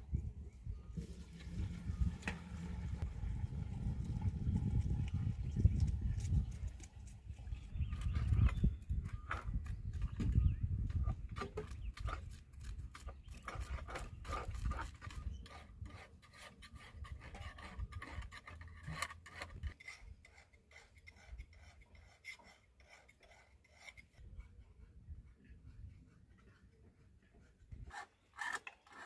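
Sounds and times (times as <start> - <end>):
rapid scraping and rasping strokes: 1.0 - 29.0.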